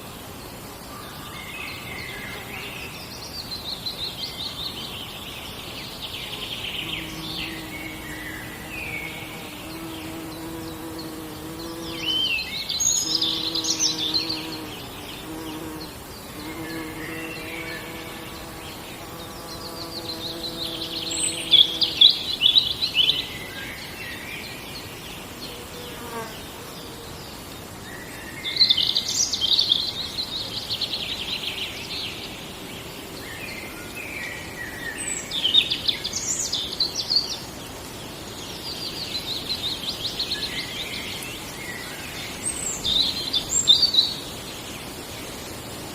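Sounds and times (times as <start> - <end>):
songbirds singing: 0.0 - 45.9
buzzing insect: 6.2 - 23.9, 25.2 - 27.6.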